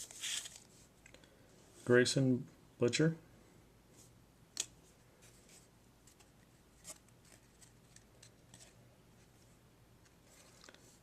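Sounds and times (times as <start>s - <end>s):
cards sliding and flipping: 0.0s - 0.9s, 4.0s - 8.8s.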